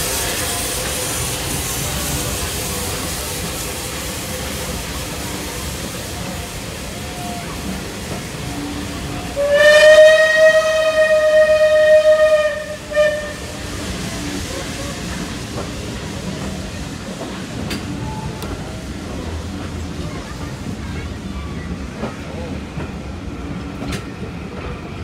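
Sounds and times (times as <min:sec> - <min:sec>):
steam locomotive whistle: 0:08.4 - 0:14.1.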